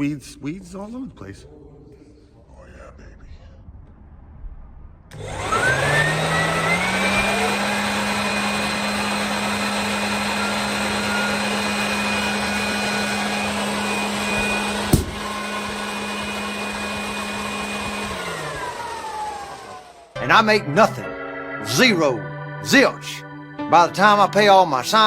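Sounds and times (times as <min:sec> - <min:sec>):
motor whining: 0:05.1 - 0:20.2.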